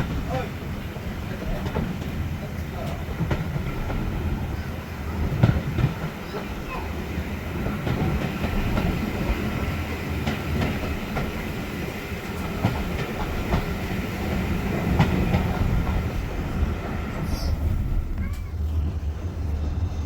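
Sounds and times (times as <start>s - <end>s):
wheels clicking over rail joints: 0.0s - 17.1s
railway carriage rumble: 0.0s - 20.0s.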